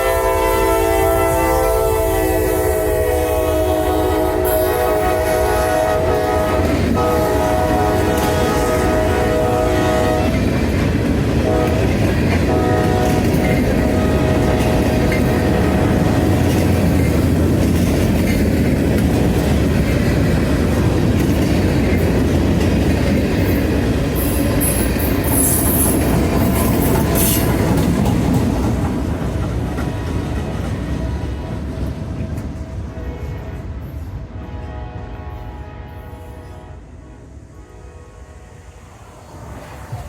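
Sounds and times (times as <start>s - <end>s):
train wheels clattering over rails: 4.4s - 34.2s.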